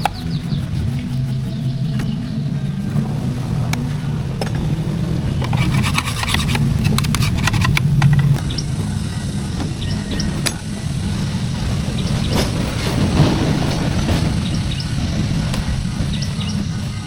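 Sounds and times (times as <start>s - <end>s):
metallic clicks and rattles: 5.4s - 8.4s.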